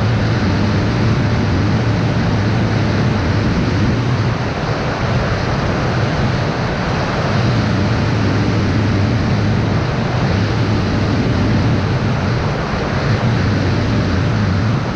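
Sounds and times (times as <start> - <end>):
quadcopter motor hum: 0.0 - 14.9
wind on microphone: 0.0 - 14.9.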